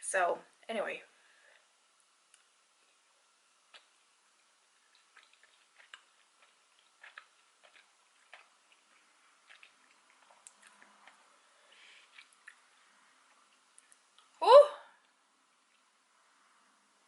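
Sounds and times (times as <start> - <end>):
soft mouth noises: 3.6 - 14.4.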